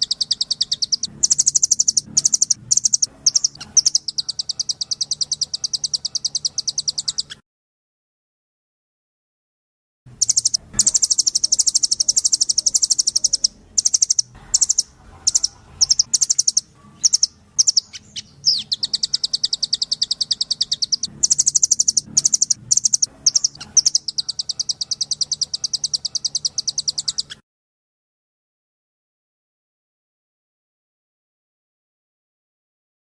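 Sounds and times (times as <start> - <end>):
high-pitched bird trills: 0.0 - 7.4, 10.2 - 27.4.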